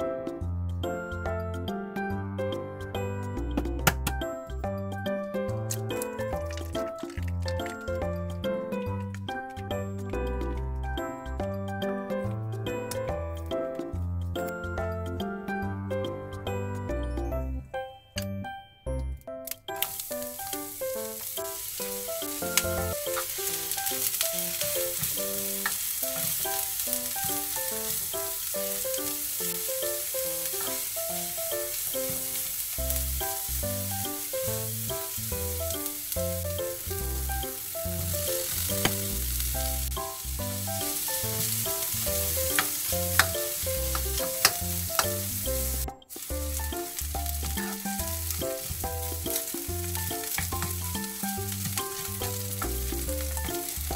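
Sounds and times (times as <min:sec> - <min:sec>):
light background music: 0:00.0 - 0:53.9
food sizzling in hot oil: 0:19.8 - 0:53.9
plastic spoon clicking on pan: 0:42.5 - 0:45.2.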